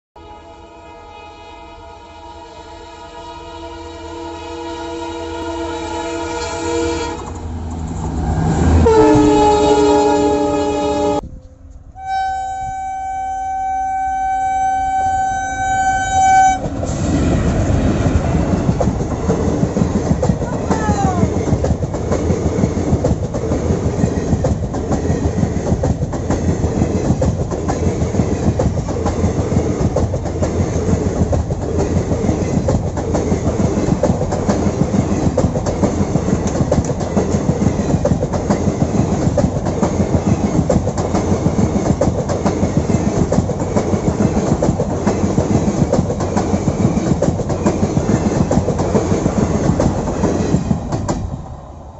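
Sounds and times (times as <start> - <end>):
train wheels rumbling on rail: 5.4 - 12.0, 15.4 - 51.9
clickety-clack over rail joints: 16.6 - 51.5.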